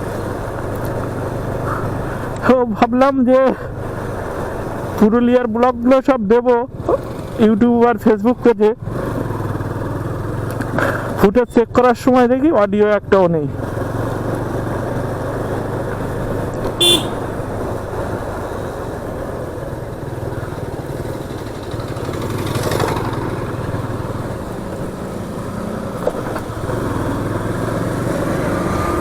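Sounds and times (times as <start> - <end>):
wind and road noise: 0.0 - 29.0
motorcycle engine running: 8.9 - 11.1, 13.5 - 29.0
horn toot: 16.8 - 17.3.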